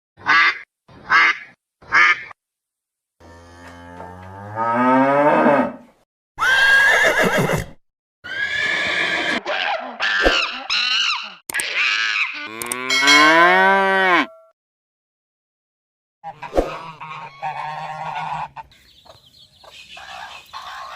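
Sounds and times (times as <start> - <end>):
loud bird calls: 16.8 - 20.9.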